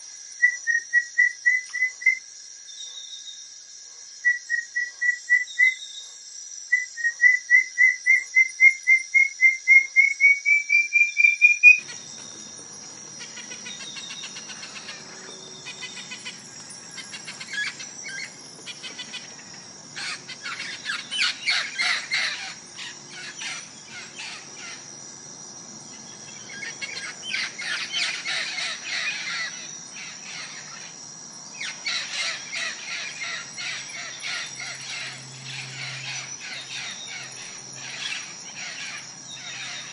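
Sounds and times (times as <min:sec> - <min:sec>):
shrill chattering bird calls: 0:06.7 - 0:24.9, 0:25.9 - 0:31.0, 0:31.6 - 0:39.9.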